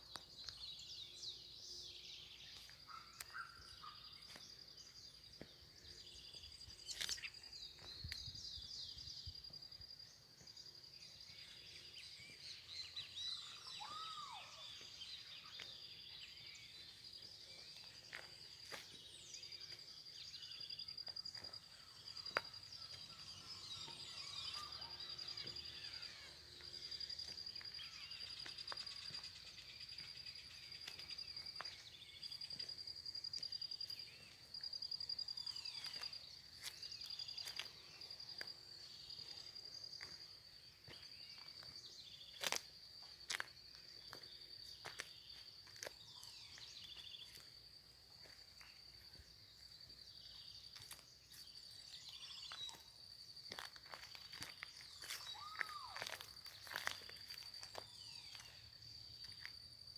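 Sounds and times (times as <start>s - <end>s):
birds chirping: 0.0s - 42.5s
insect trill: 6.0s - 59.9s.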